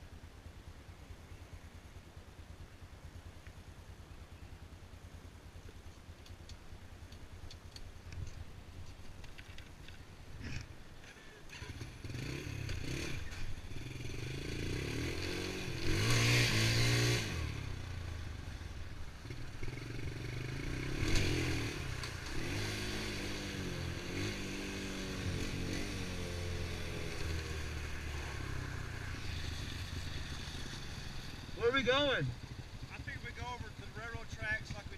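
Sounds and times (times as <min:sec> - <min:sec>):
small engine revving: 0:11.5 - 0:18.1, 0:19.2 - 0:32.8.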